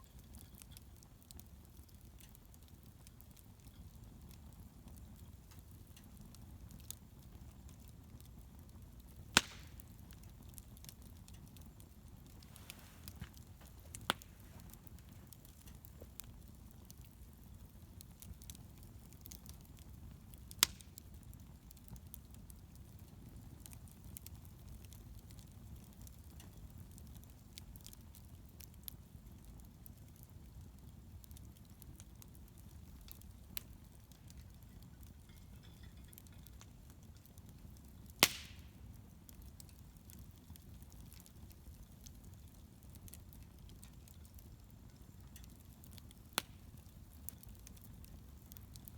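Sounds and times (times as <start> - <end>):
bonfire low rumble: 0.0 - 48.9
faint fire crackles: 0.0 - 48.9
sharp fire pops: 9.1 - 17.6, 20.3 - 21.3, 38.0 - 40.2, 45.3 - 48.9.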